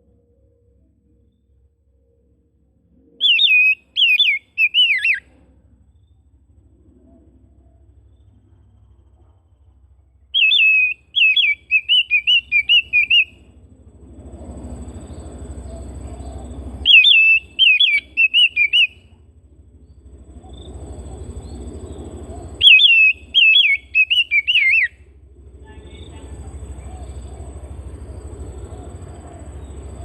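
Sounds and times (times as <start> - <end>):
low rumbling noise: 0.0 - 30.0
bird singing whistled notes: 3.2 - 5.3, 10.2 - 13.5, 14.9 - 19.1, 19.8 - 25.0.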